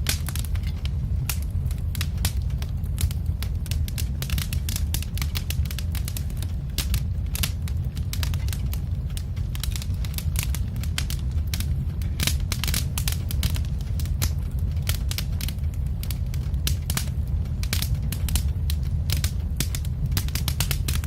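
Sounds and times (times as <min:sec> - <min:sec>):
log fire crackling: 0:00.0 - 0:21.0
low rumble: 0:00.0 - 0:21.0.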